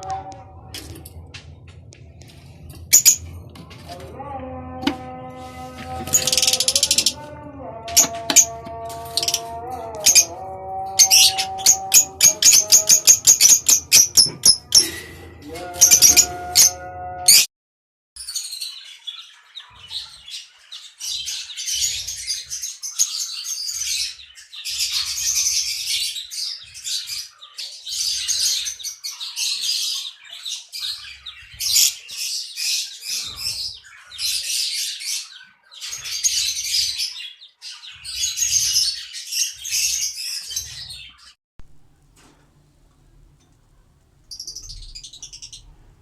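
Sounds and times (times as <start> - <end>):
lovebirds chattering shrilly: 2.9 - 3.3, 5.8 - 17.5, 44.2 - 46.0.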